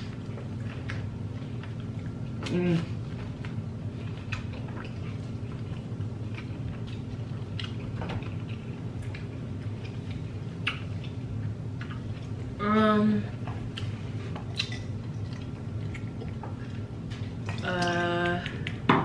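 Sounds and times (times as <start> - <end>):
steady low hum: 0.0 - 19.0
wet mouth clicks and smacks: 10.6 - 11.2, 13.7 - 16.4.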